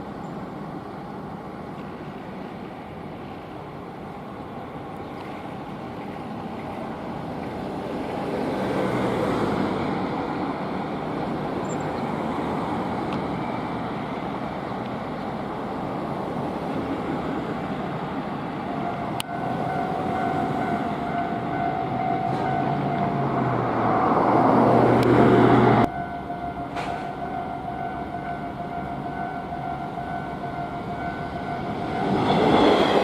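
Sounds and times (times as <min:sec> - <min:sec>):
train wheels rumbling on rails: 0:00.0 - 0:33.0
steady high tone: 0:18.5 - 0:24.0, 0:25.8 - 0:33.0.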